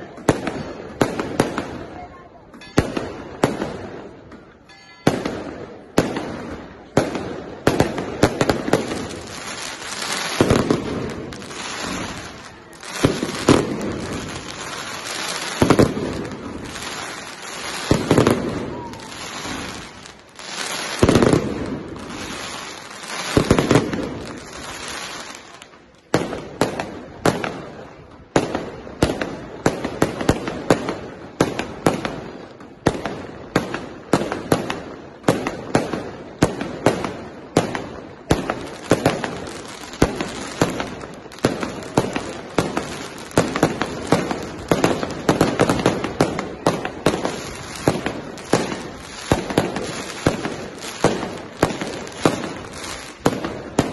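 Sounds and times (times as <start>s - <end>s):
firework barrage of bangs: 0.0s - 2.0s, 2.6s - 53.9s
firework shell bursts echoing: 2.5s - 9.3s.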